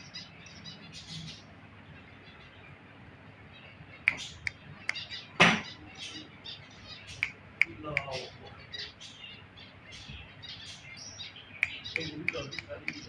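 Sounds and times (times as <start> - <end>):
soft chirping: 3.6 - 13.0
parrot clicking: 7.2 - 8.2, 11.6 - 13.0.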